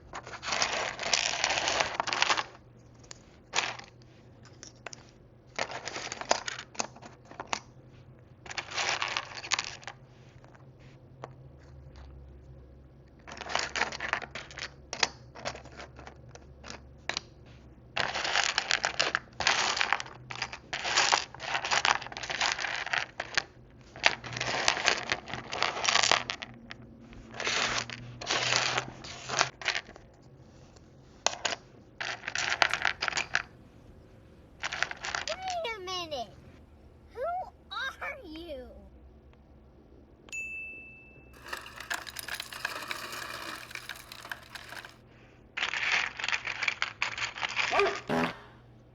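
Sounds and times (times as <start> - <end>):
tiny plastic pieces clicking: 41.4 - 45.0.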